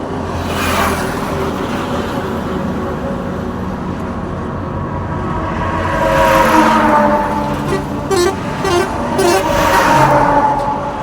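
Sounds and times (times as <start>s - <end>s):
engine drone: 5.0s - 11.0s
vehicle passing close: 5.7s - 11.0s
tyre noise: 7.6s - 10.2s.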